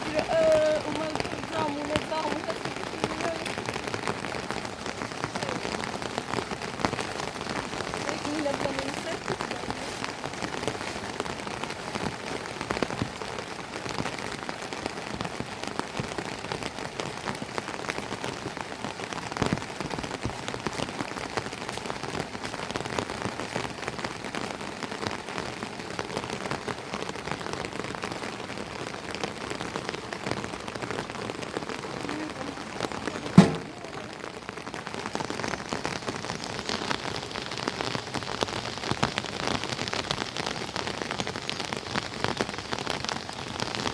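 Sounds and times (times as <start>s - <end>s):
steady rain: 0.0s - 43.9s
sharp loud knock: 33.4s - 34.0s.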